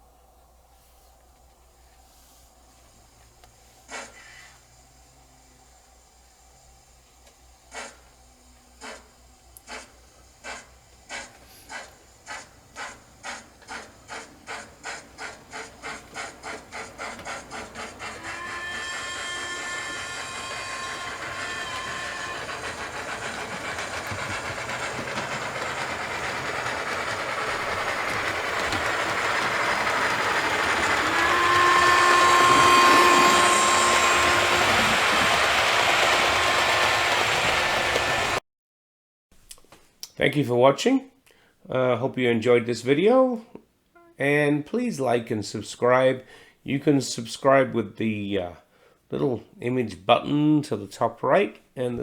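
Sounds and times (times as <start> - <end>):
steam hiss: 3.6 - 6.8, 7.6 - 38.4
steam locomotive chuffing: 7.6 - 38.4
locomotive whistle: 12.8 - 38.4.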